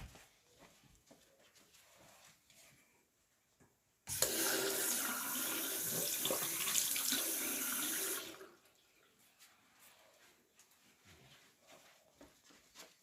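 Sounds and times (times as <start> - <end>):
water tap running: 4.1 - 8.6.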